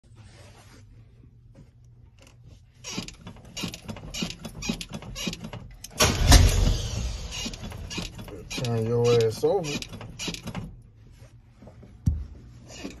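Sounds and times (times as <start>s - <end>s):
truck starter cranking engine: 2.9s - 10.7s.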